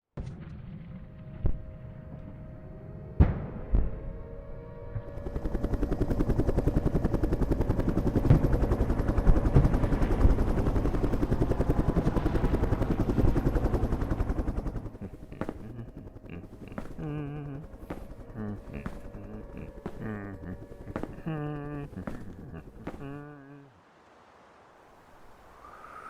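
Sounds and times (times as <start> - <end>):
rapid pulsing beats: 5.2 - 23.6.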